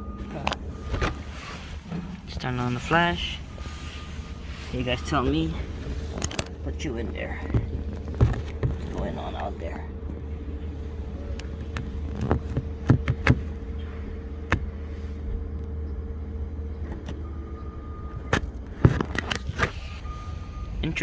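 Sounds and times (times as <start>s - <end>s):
vehicle running low hum: 0.0s - 21.0s
sharp knocks and clunks: 6.2s - 9.3s, 11.4s - 14.8s.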